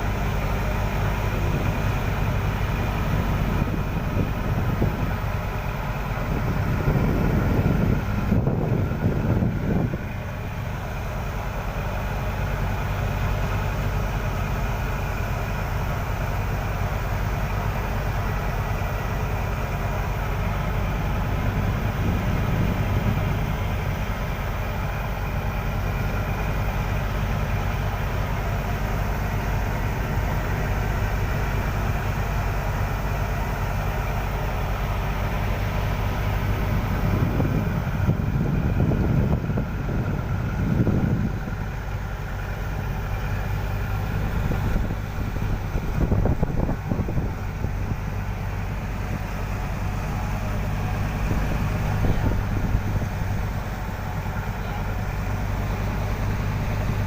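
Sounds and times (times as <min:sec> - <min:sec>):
boat engine drone: 0:00.0 - 0:57.0.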